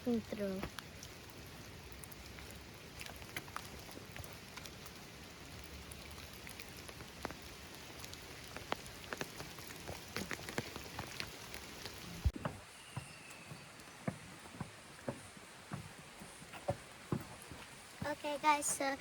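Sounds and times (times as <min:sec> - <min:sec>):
rain hiss: 0:00.0 - 0:12.4
raindrops tapping: 0:00.0 - 0:12.5, 0:13.5 - 0:19.0.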